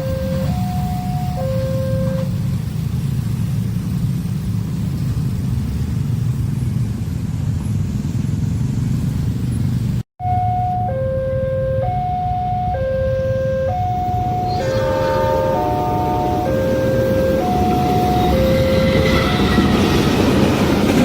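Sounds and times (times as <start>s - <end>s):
two-tone crossing alarm: 0.0s - 2.5s, 10.2s - 20.4s
train rumble: 0.0s - 21.0s.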